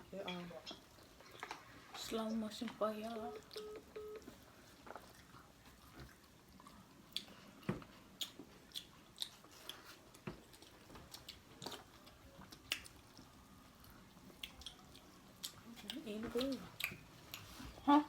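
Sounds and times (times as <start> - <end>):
person chewing and biting: 8.2 - 15.6.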